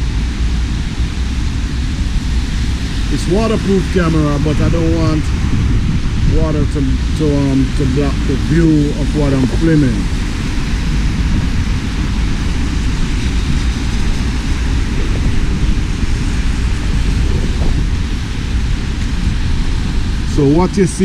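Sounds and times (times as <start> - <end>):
rain falling: 0.0 - 21.0
wind buffeting microphone: 0.0 - 21.0.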